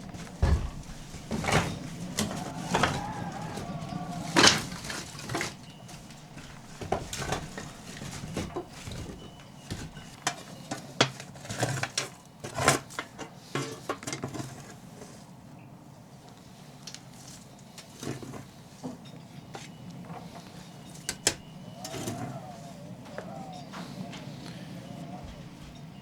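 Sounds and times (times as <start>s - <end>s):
objects being handled: 0.0s - 10.8s.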